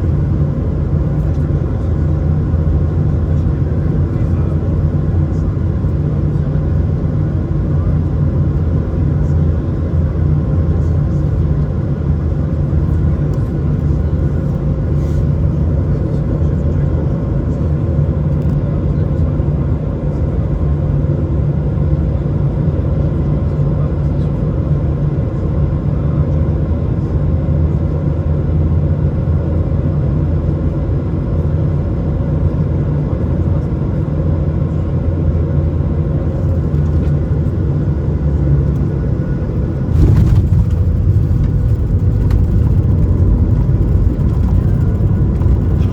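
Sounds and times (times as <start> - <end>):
aircraft cabin rumble: 0.0 - 45.9.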